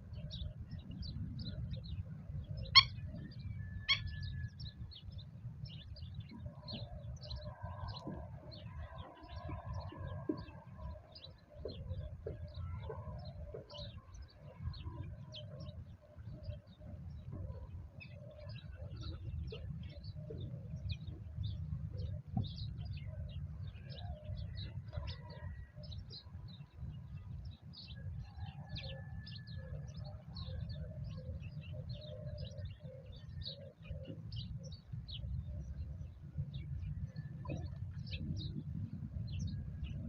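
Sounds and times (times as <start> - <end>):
birds chirping rapidly: 0.2 - 40.0
drawn-out bird calls: 2.5 - 4.6.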